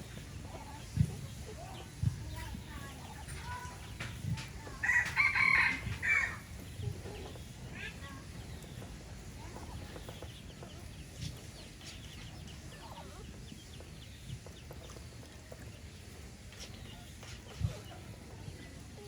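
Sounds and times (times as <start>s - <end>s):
rooster crowing: 4.8s - 6.4s.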